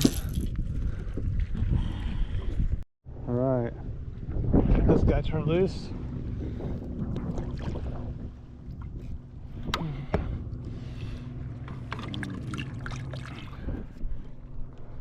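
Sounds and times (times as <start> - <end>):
low hum: 0.0 - 15.0
water splashing: 11.7 - 13.9.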